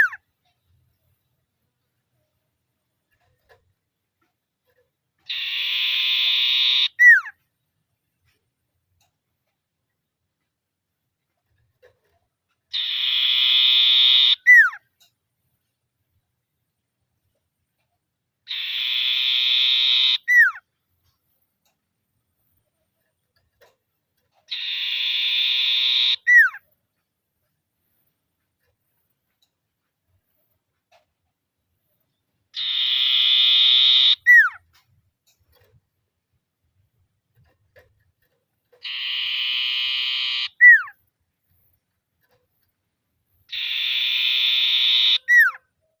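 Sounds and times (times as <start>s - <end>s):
bird rattling trill and whistle: 5.2s - 7.4s, 12.7s - 14.8s, 18.5s - 20.7s, 24.4s - 26.7s, 32.5s - 34.7s, 38.2s - 41.0s, 43.5s - 45.6s.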